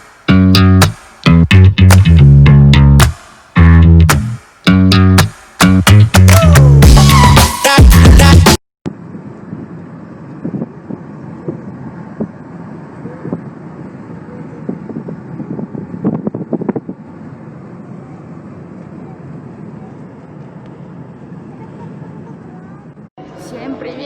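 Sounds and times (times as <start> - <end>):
wind noise on microphone: 8.9 - 18.8.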